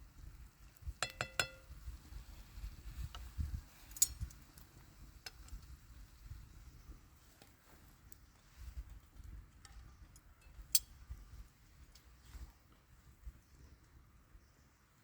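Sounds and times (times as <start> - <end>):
camp cooking gear clinking: 0.9 - 1.8, 8.8 - 12.2.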